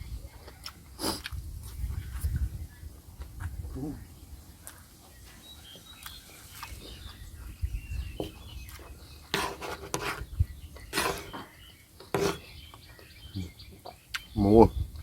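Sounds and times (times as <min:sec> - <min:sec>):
rustling: 0:08.2 - 0:12.6.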